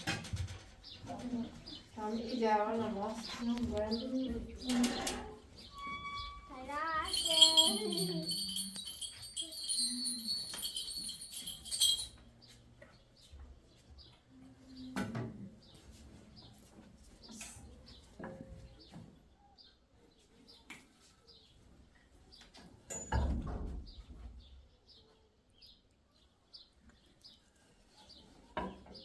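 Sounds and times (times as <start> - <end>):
small birds chirping: 6.2 - 12.1
bell-like ringing: 6.9 - 12.1.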